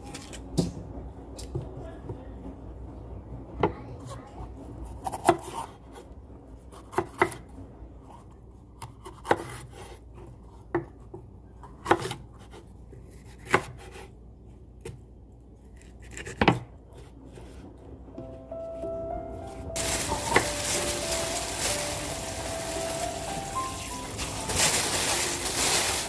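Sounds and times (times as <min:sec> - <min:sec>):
knife chopping on cutting board: 0:13.3 - 0:14.0.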